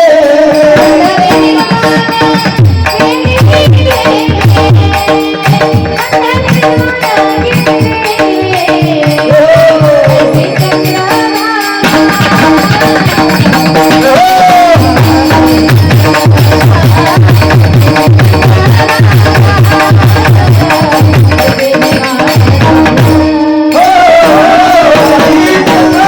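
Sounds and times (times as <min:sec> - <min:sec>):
hand drum beating quick rhythm: 0:00.6 - 0:26.0.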